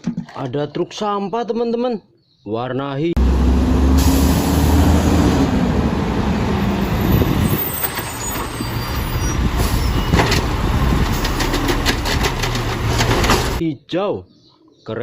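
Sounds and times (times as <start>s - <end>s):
truck engine rumbling: 3.2s - 13.6s.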